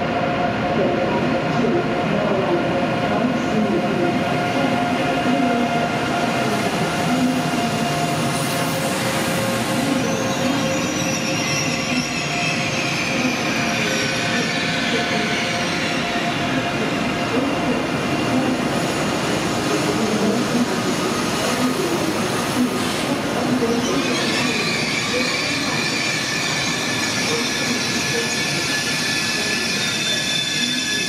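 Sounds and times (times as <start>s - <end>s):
wheel and brake squeal: 7.8s - 16.4s, 23.6s - 31.0s.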